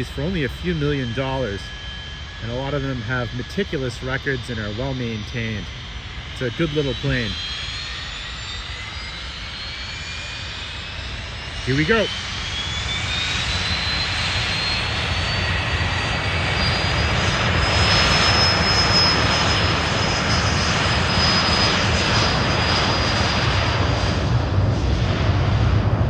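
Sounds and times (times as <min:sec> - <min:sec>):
jet engines spooling up: 0:00.0 - 0:26.0
broad rushing rumble: 0:21.8 - 0:26.0.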